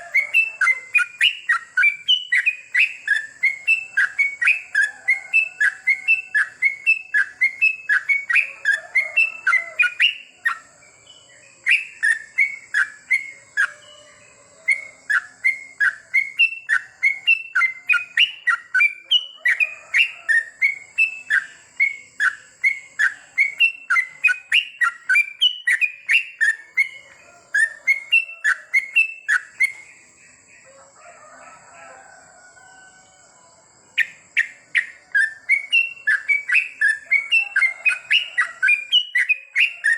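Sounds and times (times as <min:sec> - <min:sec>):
bulbul singing whistled notes: 0:00.0 - 0:30.0, 0:34.0 - 0:39.9.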